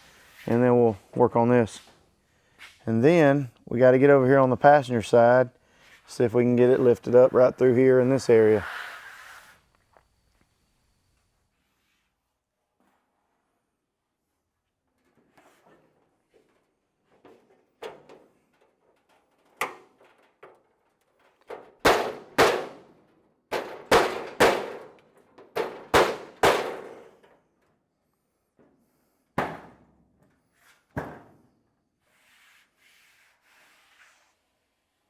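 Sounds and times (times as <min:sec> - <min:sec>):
hand smacking metal lid: 0:25.6 - 0:27.1.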